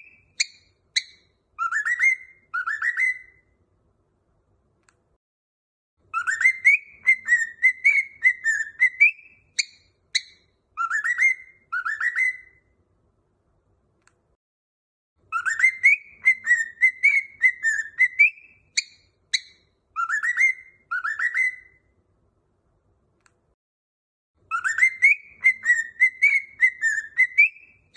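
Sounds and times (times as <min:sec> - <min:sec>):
cockatiel whistling a tune: 0:00.0 - 0:03.5, 0:06.1 - 0:12.7, 0:15.2 - 0:21.9, 0:24.5 - 0:27.9.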